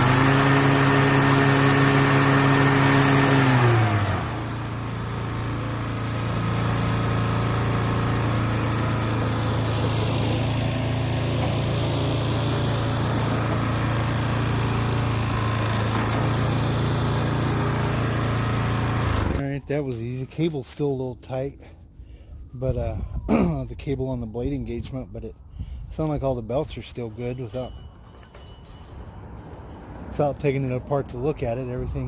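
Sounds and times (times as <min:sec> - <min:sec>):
lawn mower engine running: 0:00.0 - 0:19.4, 0:26.8 - 0:32.0.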